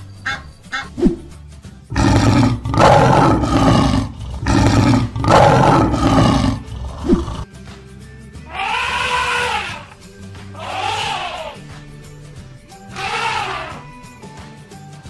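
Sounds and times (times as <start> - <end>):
lion roaring: 1.9 - 7.4
pitched animal call: 1.9 - 7.4, 8.5 - 9.9, 10.6 - 11.6, 12.9 - 13.8.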